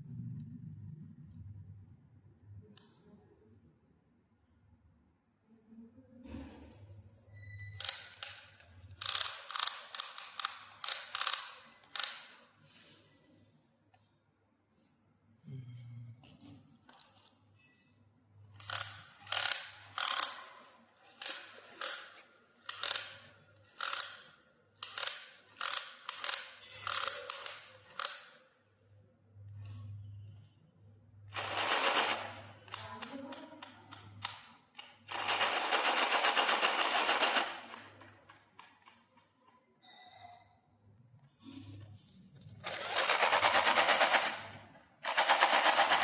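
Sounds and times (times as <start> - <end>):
small motor and gears rattling: 42.6 - 46.0.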